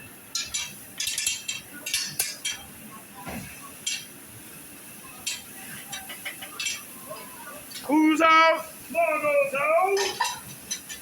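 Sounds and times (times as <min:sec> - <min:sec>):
metal utensils clinking and scraping: 0:00.3 - 0:02.8, 0:03.8 - 0:04.2, 0:05.2 - 0:06.9, 0:10.0 - 0:11.0.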